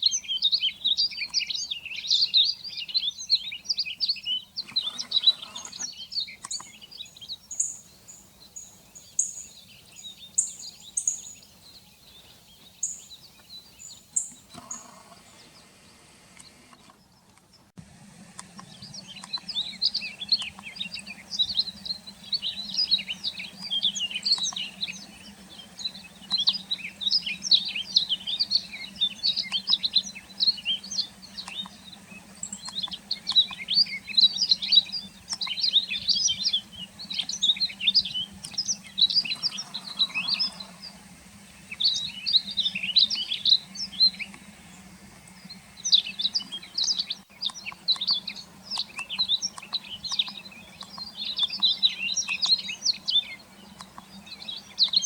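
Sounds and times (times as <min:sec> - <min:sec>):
bird twittering song: 0:00.0 - 0:17.7, 0:18.4 - 0:55.0
faint steady hum: 0:00.0 - 0:55.0.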